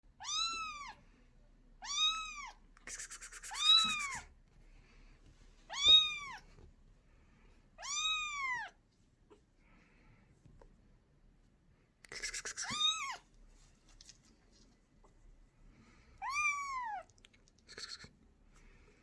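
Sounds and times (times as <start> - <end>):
kitten meowing: 0.2 - 1.0, 1.8 - 2.6, 3.5 - 4.3, 5.7 - 6.4, 7.8 - 8.8, 12.5 - 13.2, 16.2 - 17.1.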